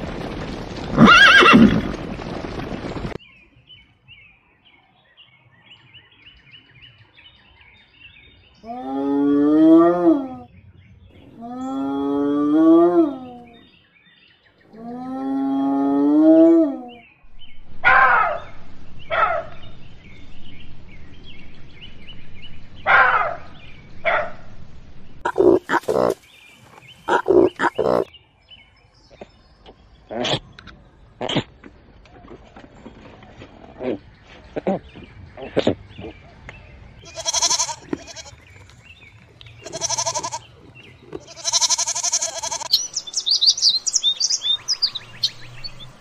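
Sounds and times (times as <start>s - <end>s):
horse neighing: 1.0s - 1.9s, 39.6s - 40.5s.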